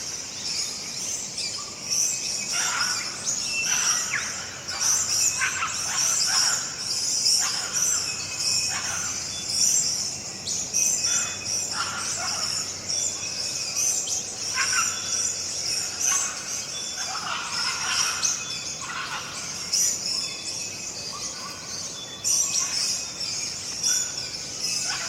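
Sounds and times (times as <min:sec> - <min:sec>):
birds calling and chirping: 0:00.0 - 0:25.0
insects chirring: 0:00.0 - 0:25.0.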